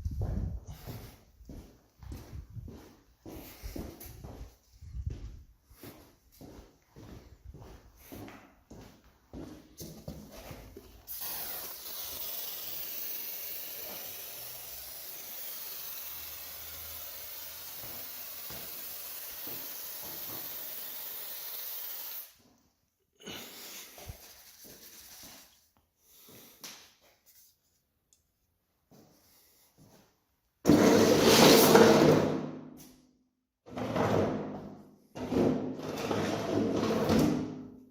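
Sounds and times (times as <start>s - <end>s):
aerosol can spraying hiss: 11.0s - 22.4s, 23.9s - 25.5s.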